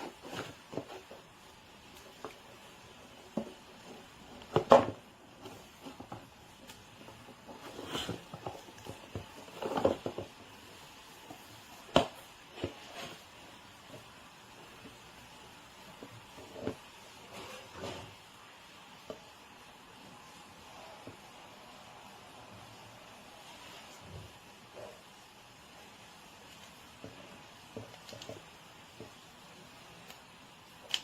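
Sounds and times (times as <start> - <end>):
rustling: 0.0 - 18.2.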